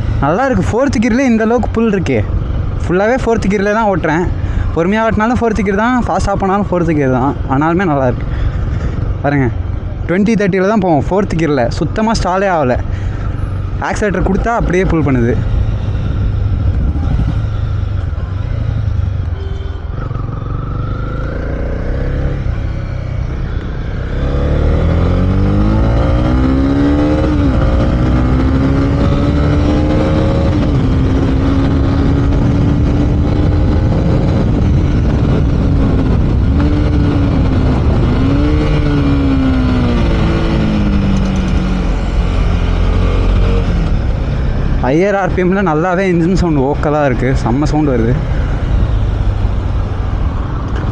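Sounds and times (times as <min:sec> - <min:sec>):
wind and road rumble: 0:00.0 - 0:50.9
motorcycle engine revving: 0:13.0 - 0:50.9.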